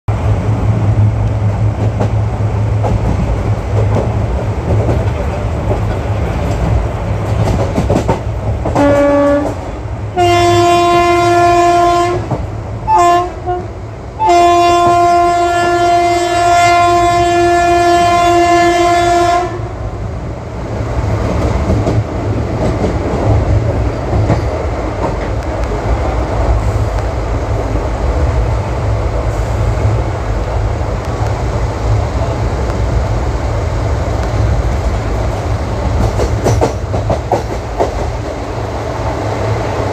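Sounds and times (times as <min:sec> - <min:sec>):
train coaches rumbling on track: 0:00.1 - 0:39.9
locomotive horn blasts: 0:08.8 - 0:19.8.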